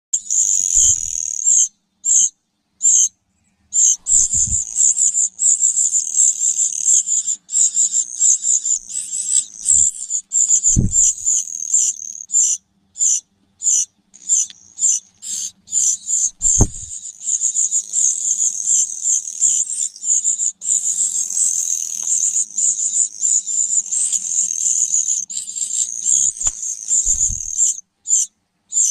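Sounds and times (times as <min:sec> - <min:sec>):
dull thumps: 0:00.8 - 0:01.1, 0:10.7 - 0:11.2, 0:16.4 - 0:16.9, 0:26.4 - 0:27.6.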